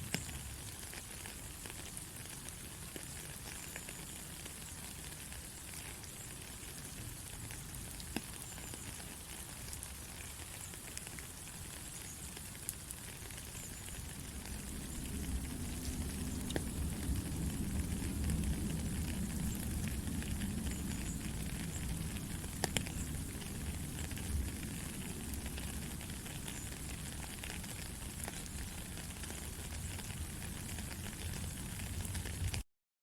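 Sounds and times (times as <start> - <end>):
raindrop ticks: 0.0 - 32.6
steady rain hiss: 0.0 - 32.6
low rumble: 14.1 - 25.8.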